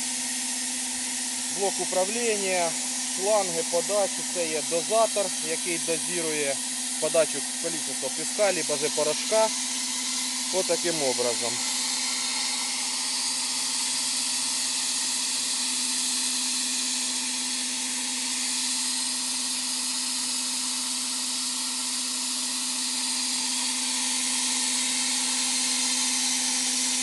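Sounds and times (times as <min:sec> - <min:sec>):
steady low hum: 0:00.0 - 0:14.8
sandblasting nozzle hiss: 0:00.0 - 0:27.0.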